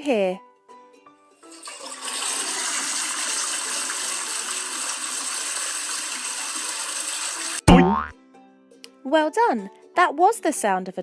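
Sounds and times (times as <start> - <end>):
toilet flushing: 1.5 - 7.6.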